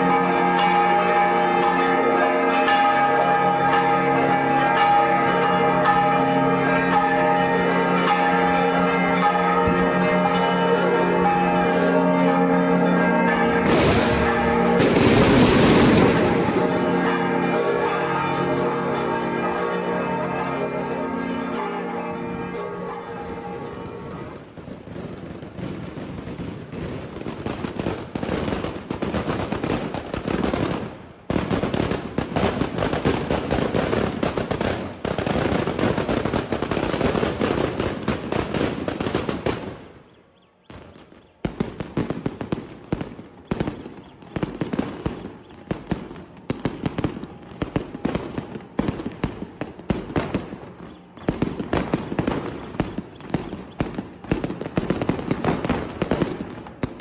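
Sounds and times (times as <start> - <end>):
fireworks bangs: 11.0 - 20.3, 22.5 - 40.1, 40.7 - 57.0
firecrackers rattling: 11.2 - 19.5, 22.9 - 39.9, 40.8 - 57.0.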